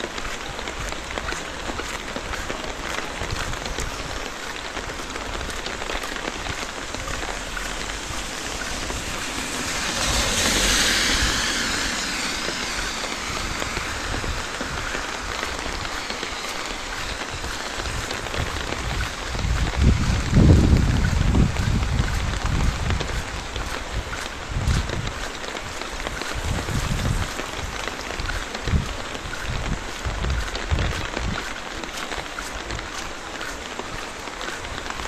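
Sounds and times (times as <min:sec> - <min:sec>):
rain on a wet street: 0:00.0 - 0:35.0
vehicle tyres hissing on wet road: 0:00.0 - 0:35.0.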